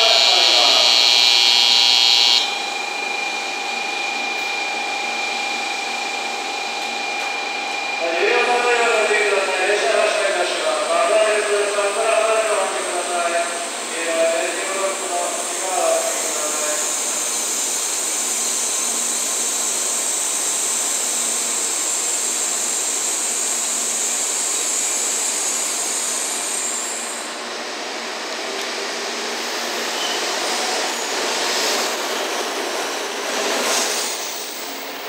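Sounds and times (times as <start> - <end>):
train high hiss: 0.0 - 1.2, 1.8 - 35.0
rush of passing train cars: 24.0 - 35.0.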